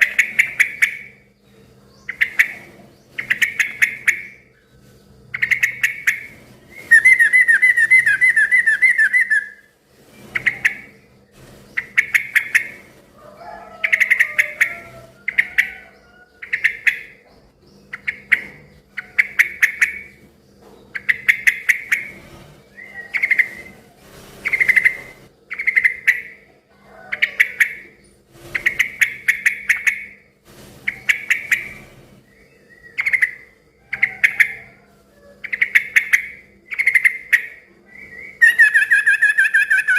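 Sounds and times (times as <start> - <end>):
bulbul singing: 0.0 - 9.7, 13.4 - 23.8, 24.4 - 26.5, 27.1 - 34.8, 35.4 - 39.9
bird chattering run: 5.3 - 9.6, 20.8 - 22.2.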